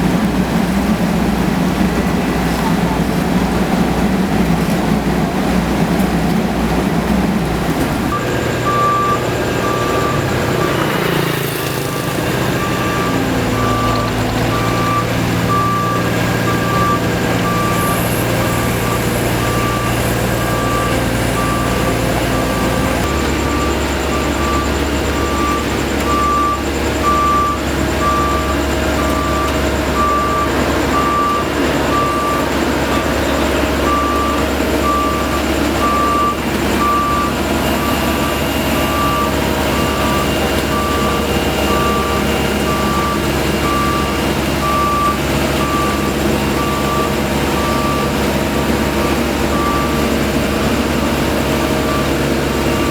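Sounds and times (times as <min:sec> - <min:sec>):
diesel engines of paving machines: 0:00.0 - 0:52.9
reversing alarm beeping: 0:08.1 - 0:52.9.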